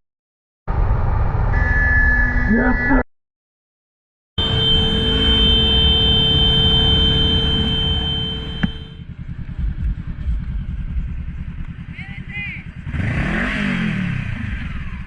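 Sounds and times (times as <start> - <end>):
steady high tone: 4.4 - 9.0
motorcycle engine running: 4.4 - 15.0
road noise: 4.4 - 15.0.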